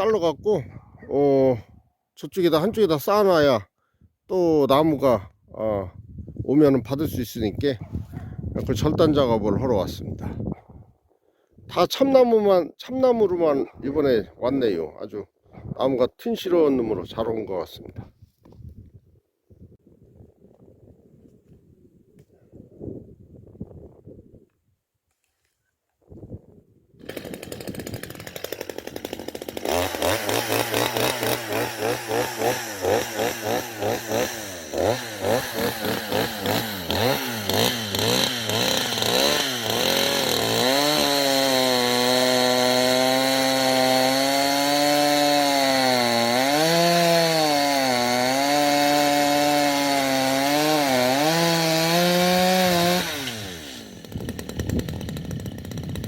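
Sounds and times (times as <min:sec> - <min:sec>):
chainsaw revving and cutting wood: 0:27.0 - 0:56.0.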